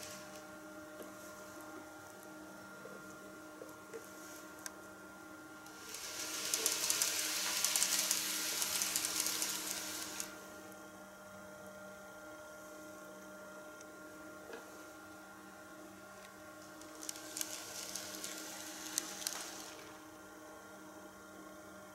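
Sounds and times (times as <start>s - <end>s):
faint steady hum: 0.0s - 21.9s
model train rolling rattle: 5.8s - 10.3s, 16.8s - 19.8s.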